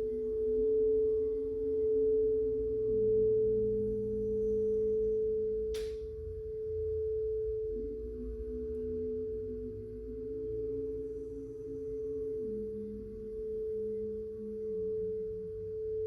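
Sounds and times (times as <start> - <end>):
singing bowl ringing: 0.0 - 16.0
brief click: 5.8 - 6.1.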